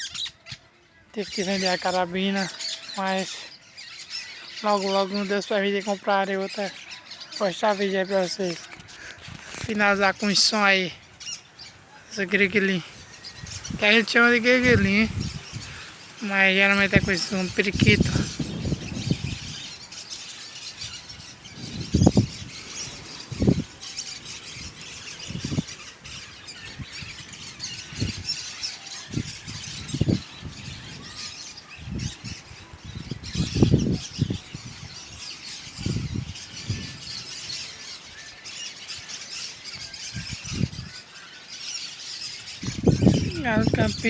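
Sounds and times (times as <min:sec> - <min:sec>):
parakeets chattering: 0:01.2 - 0:44.0
low rumbles on microphone: 0:21.5 - 0:23.7.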